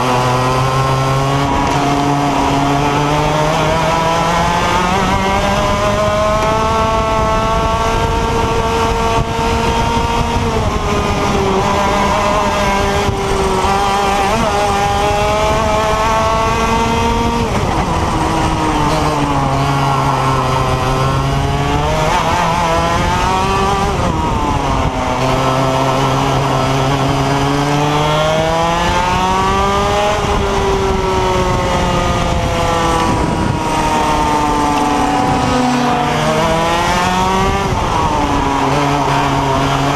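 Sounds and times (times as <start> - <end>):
kart engine racing: 0.0 - 39.9.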